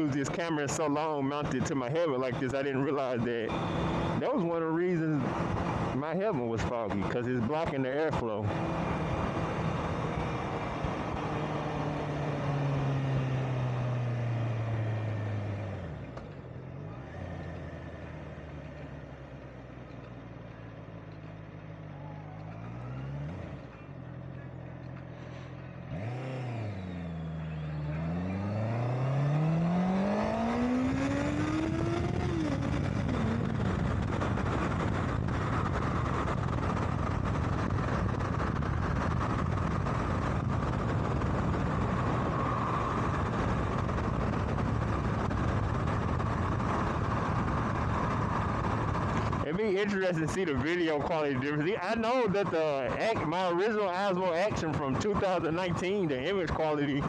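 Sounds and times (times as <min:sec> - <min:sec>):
motorcycle engine revving: 0:08.2 - 0:16.0, 0:22.4 - 0:49.5
wind rush: 0:29.4 - 0:49.4.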